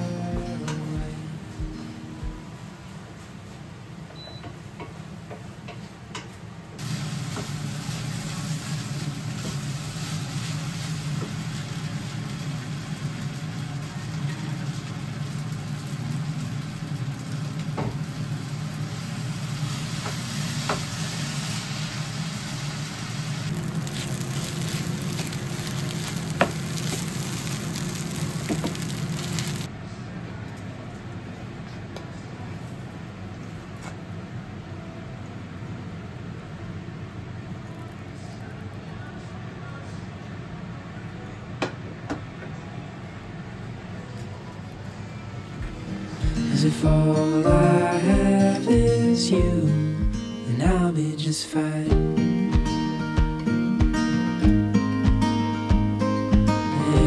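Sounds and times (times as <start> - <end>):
low hum: 0.0 - 2.9
rice sizzling in a pan: 6.8 - 29.7.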